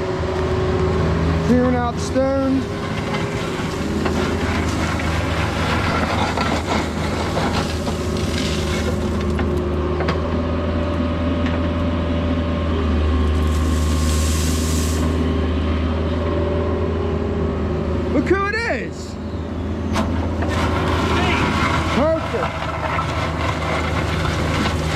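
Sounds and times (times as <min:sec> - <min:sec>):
diesel engine running: 0:00.0 - 0:24.9
bucket scraping crushed stone: 0:01.5 - 0:09.4, 0:13.3 - 0:15.2, 0:20.4 - 0:24.9.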